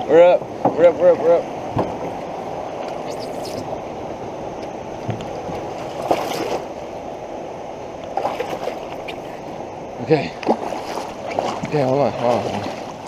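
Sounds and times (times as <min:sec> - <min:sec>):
floodwater rushing in creek: 0:00.0 - 0:13.0
paddle splash: 0:05.3 - 0:06.8, 0:08.1 - 0:09.7, 0:10.3 - 0:13.0.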